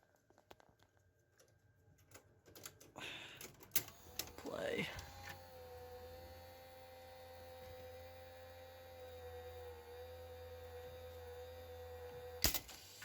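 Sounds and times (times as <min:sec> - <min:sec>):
vcr motor hum with whine: 0:03.8 - 0:13.0.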